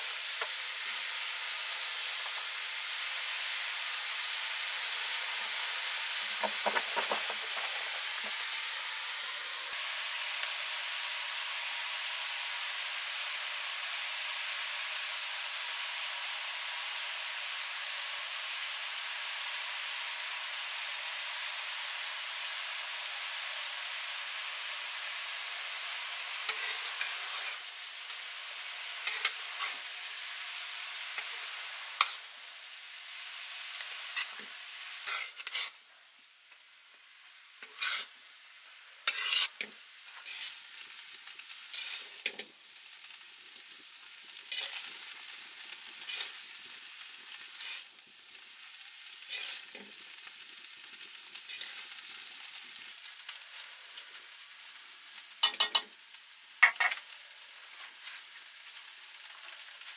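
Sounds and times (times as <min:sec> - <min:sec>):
noodles sizzling in a wok: 0:00.0 - 0:59.9
metal spatula scraping wok: 0:06.2 - 0:08.6, 0:26.5 - 0:27.7, 0:29.0 - 0:29.8, 0:31.2 - 0:32.3, 0:34.0 - 0:35.8, 0:37.6 - 0:38.1, 0:39.0 - 0:40.7, 0:41.6 - 0:42.5, 0:44.5 - 0:45.0, 0:45.9 - 0:46.6, 0:47.3 - 0:48.0, 0:49.2 - 0:50.0, 0:51.4 - 0:52.0, 0:55.4 - 0:55.9.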